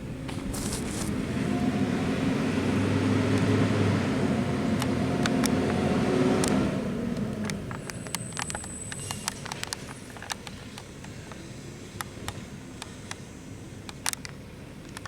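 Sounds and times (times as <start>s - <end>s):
garbage truck engine running: 0.0s - 15.0s
sharp clicks: 6.4s - 15.0s.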